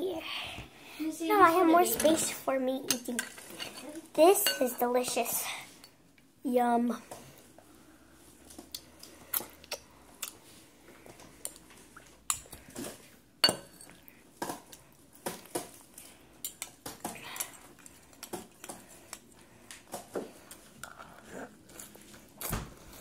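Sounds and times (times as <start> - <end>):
cutlery clinking against dish: 4.4 - 4.7.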